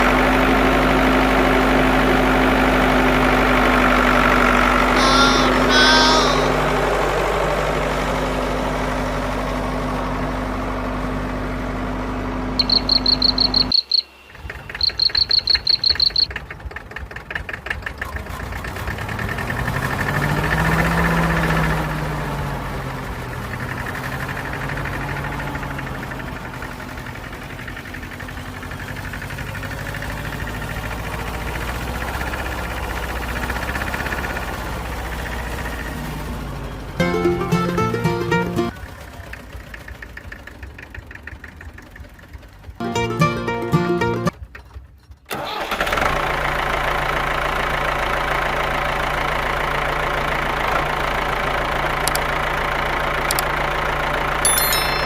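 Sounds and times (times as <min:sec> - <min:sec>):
rapid high-pitched beeping: 0:12.6 - 0:14.1, 0:14.8 - 0:16.3.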